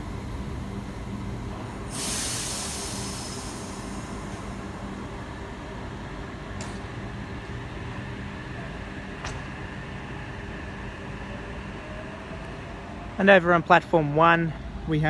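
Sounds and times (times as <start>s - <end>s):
electric train humming: 0.0s - 11.8s.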